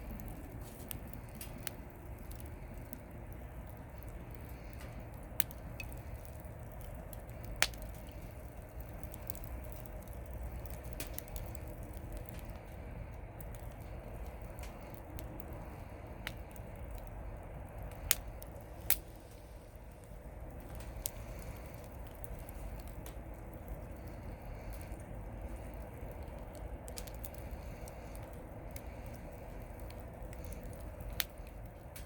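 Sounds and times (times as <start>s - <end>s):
campfire crackling: 0.0s - 32.0s
low rumble of fire: 0.0s - 32.0s
sharp pops of fire: 0.0s - 32.0s.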